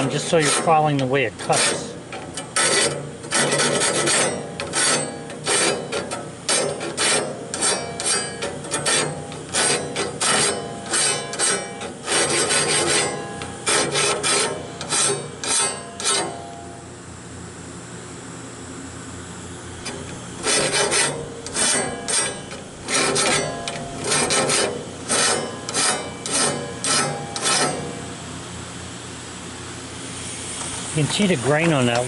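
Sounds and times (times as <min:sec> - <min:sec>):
hand file rasping on saw blade: 0:00.0 - 0:16.4, 0:20.4 - 0:28.0.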